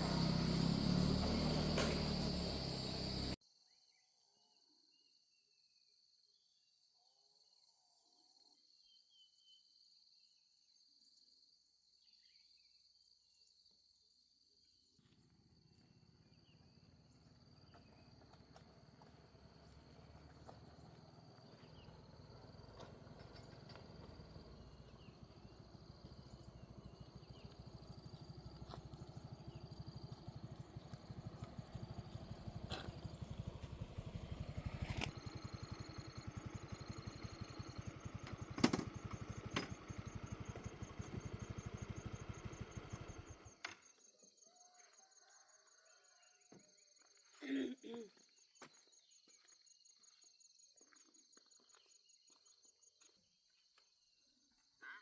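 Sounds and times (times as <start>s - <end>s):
vehicle engine running: 0.0s - 3.4s, 15.2s - 43.6s
crickets chirping: 0.0s - 3.7s, 12.2s - 55.0s.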